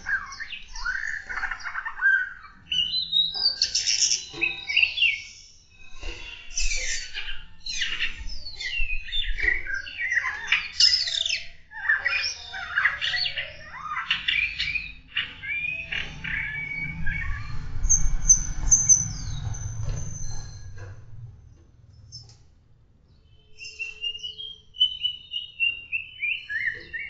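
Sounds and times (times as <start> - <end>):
songbirds warbling: 0.0 - 20.6, 23.1 - 27.0
low rumble: 15.8 - 22.3.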